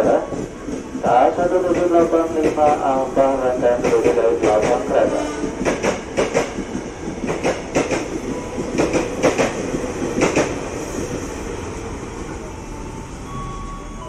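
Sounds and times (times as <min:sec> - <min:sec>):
train rumble: 0:00.0 - 0:14.0
wheels clacking over rail joints: 0:03.7 - 0:11.1.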